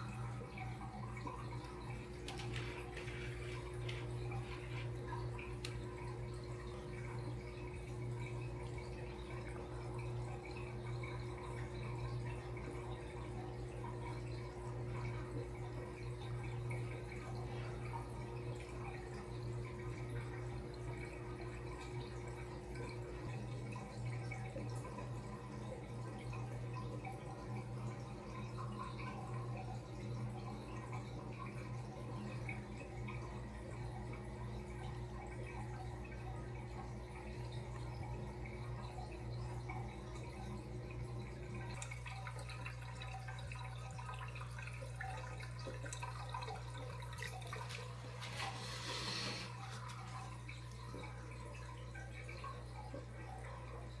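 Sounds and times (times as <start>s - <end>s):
water trickling into aquarium: 0.0s - 54.0s.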